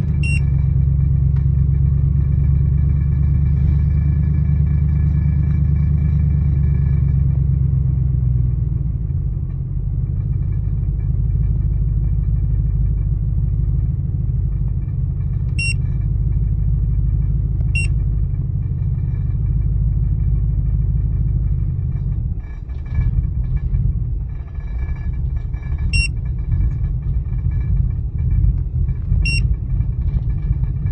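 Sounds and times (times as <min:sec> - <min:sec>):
car engine idling roughly: 0:00.0 - 0:30.9
short high beeps: 0:00.2 - 0:00.5, 0:15.6 - 0:15.8.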